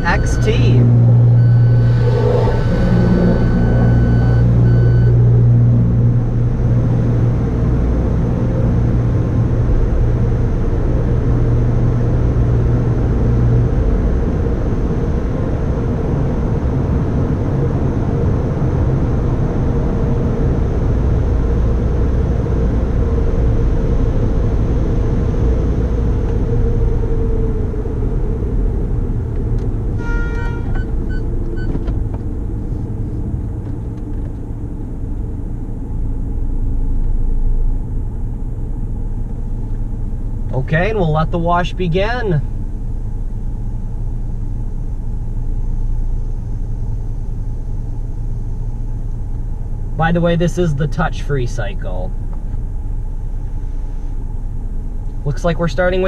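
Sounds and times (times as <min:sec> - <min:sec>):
car engine rumbling: 0:00.0 - 0:56.0
short electronic chime: 0:00.1 - 0:05.2.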